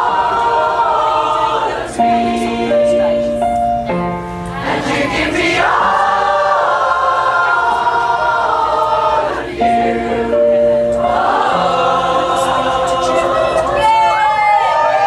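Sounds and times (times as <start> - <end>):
choir singing: 0.0 - 3.4, 4.5 - 15.0
musical accompaniment: 0.0 - 15.0.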